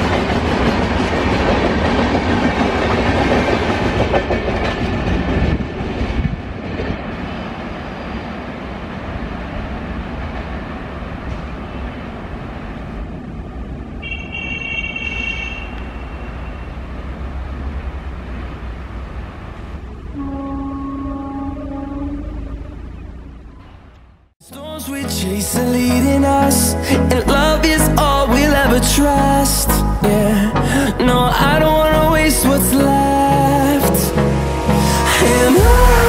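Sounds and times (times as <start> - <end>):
train rumbling with wheel clatter: 0.0 - 24.4.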